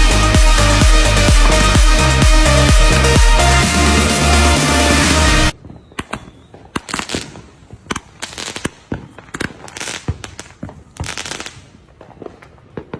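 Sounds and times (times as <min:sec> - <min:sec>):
fireworks crackling: 0:00.0 - 0:12.9
fireworks bangs and pops: 0:05.5 - 0:12.9.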